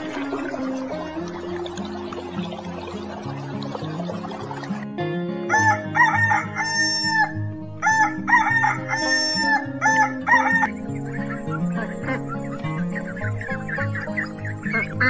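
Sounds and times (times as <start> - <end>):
background music: 0.0 - 15.0
rooster crowing: 5.5 - 10.7.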